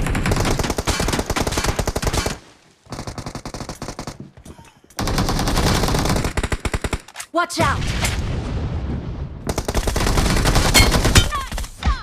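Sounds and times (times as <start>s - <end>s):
video game automatic gunfire: 0.0s - 4.2s, 5.0s - 7.1s, 9.5s - 11.6s.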